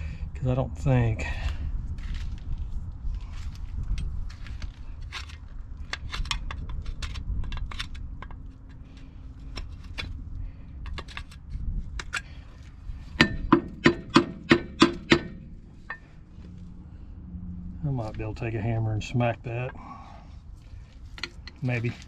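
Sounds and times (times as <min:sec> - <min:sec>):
metal parts clicking and knocking: 0:05.2 - 0:10.2, 0:10.8 - 0:11.4, 0:21.0 - 0:22.0.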